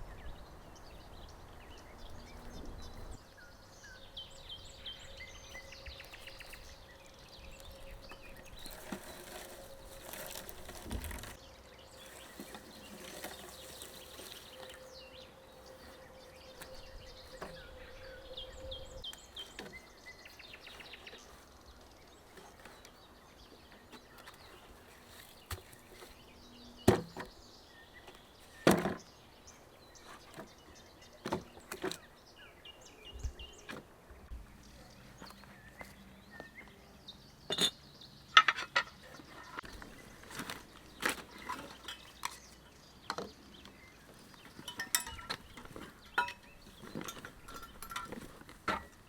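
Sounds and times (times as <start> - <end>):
quiet forest background: 0.0 - 49.0
objects knocking and clacking: 44.6 - 48.9.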